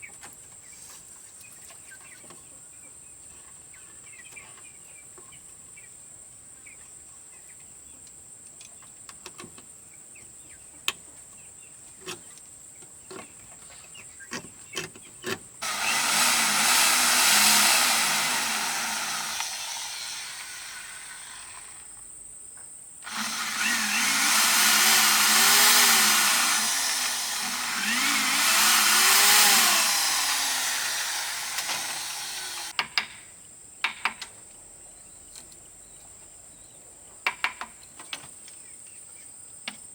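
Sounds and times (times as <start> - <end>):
small motor-driven machine running: 15.6 - 21.8, 23.1 - 32.7.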